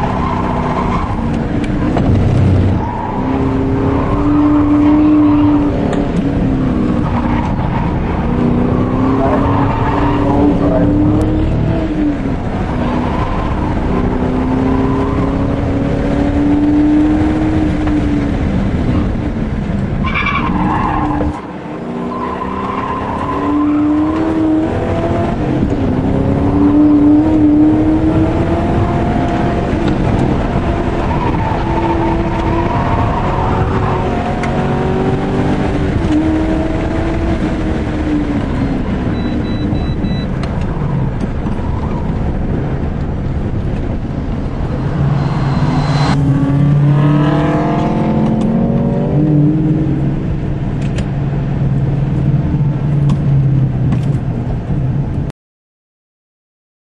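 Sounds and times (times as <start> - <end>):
racing car engine revving through gears: 0.0 - 19.8, 20.6 - 41.4, 43.6 - 51.1
tyre squeal: 44.7 - 46.2.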